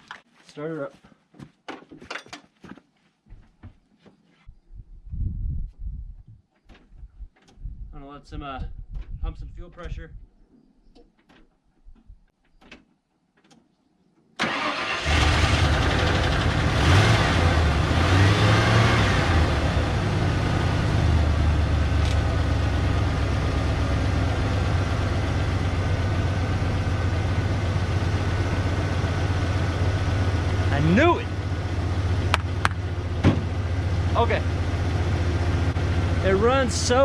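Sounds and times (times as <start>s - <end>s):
truck engine starting and idling: 14.4s - 37.0s.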